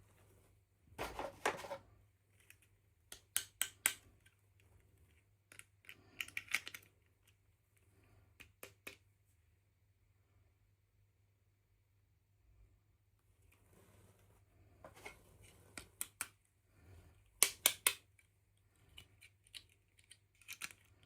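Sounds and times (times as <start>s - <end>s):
plastic toy pieces clicking: 2.4s - 4.4s, 5.5s - 7.4s, 17.4s - 18.3s, 18.9s - 21.0s.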